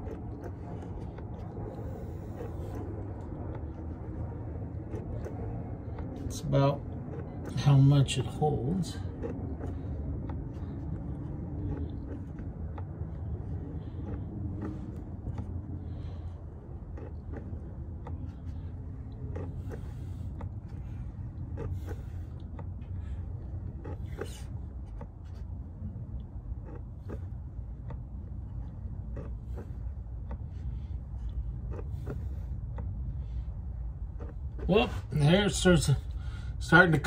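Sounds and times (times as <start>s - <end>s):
hand pump clicks and squelches: 0.0s - 34.9s
steady low hum: 0.0s - 37.0s.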